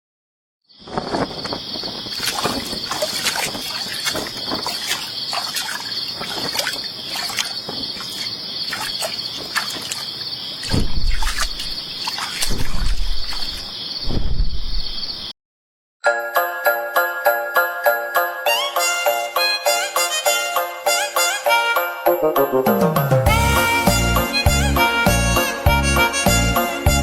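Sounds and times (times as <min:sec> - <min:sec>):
high insect chorus: 0:00.7 - 0:15.3.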